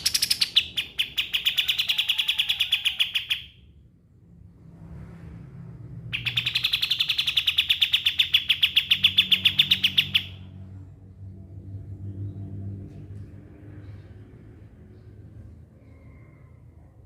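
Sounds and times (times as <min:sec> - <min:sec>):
bird singing fast trill: 0:06.1 - 0:10.4.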